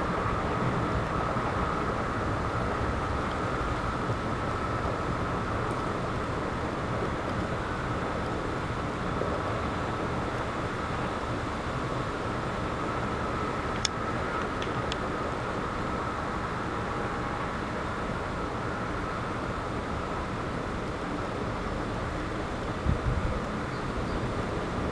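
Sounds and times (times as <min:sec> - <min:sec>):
faint steady whine: 0:00.0 - 0:24.9
wind rumbling: 0:22.7 - 0:24.9.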